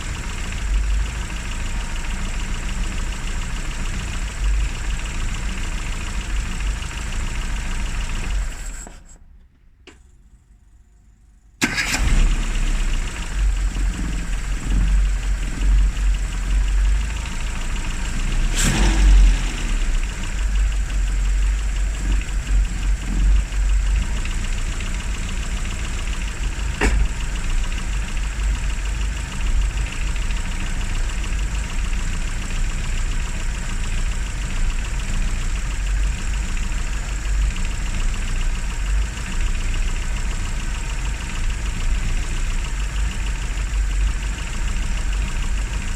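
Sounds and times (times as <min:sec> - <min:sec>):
car engine idling: 0:00.0 - 0:45.9
sharp click: 0:26.8 - 0:27.1.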